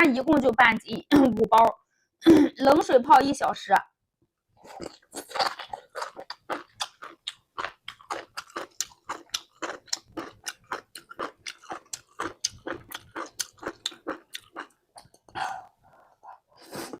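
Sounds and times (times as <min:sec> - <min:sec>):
person chewing crunchy food: 0:04.6 - 0:15.8.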